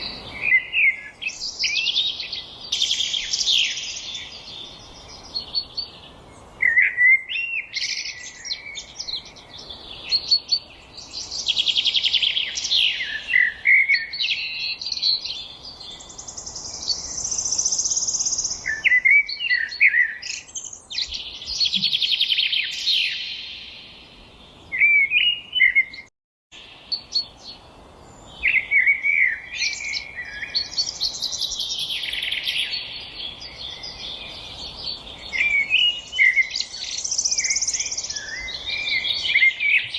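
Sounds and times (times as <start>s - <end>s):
songbirds singing: 0.0s - 39.9s
faint background hiss: 26.6s - 39.9s.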